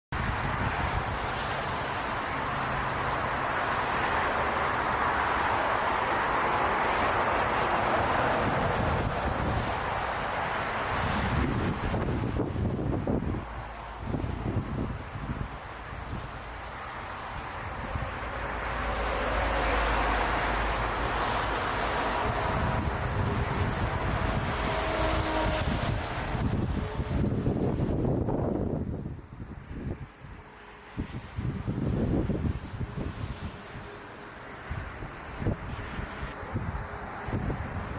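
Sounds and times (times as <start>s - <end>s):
wind buffeting microphone: 0.1s - 37.9s
jet engines roaring: 0.2s - 28.3s.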